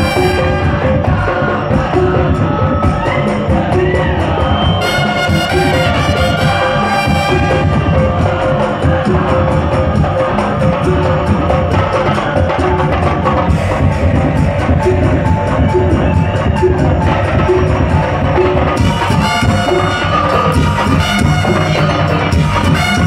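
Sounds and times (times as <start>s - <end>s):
horn-like melody: 0.0s - 1.4s, 4.7s - 8.9s, 18.5s - 23.0s
drumming and percussion: 0.0s - 23.0s.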